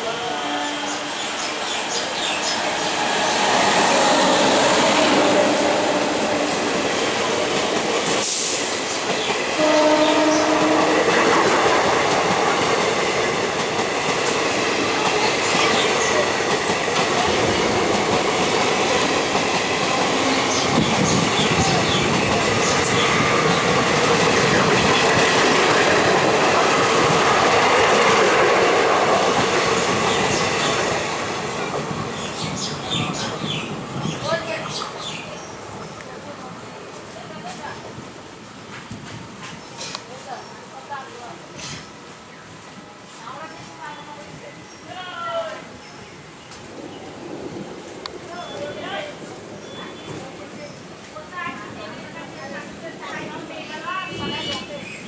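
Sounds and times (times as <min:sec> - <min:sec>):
electric train passing at speed: 0:00.0 - 0:55.0
train horn: 0:00.1 - 0:01.4, 0:09.6 - 0:11.2.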